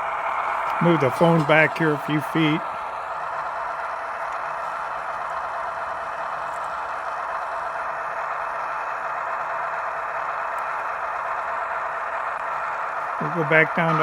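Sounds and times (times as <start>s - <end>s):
diesel locomotive engine sound effect: 0.0s - 14.0s
faint hum: 0.0s - 14.0s.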